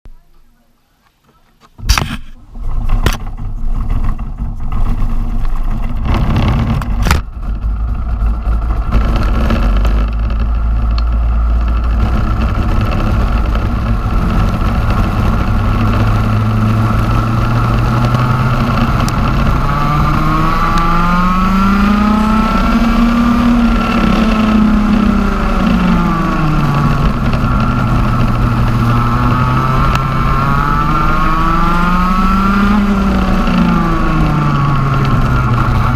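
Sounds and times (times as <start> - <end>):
kart engine revving: 1.8 - 35.9.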